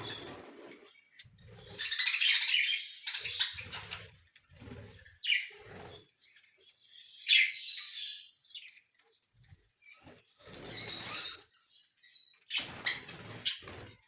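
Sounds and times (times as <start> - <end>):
budgerigars chattering and chirping: 1.1 - 4.1, 5.2 - 6.0, 10.5 - 11.4.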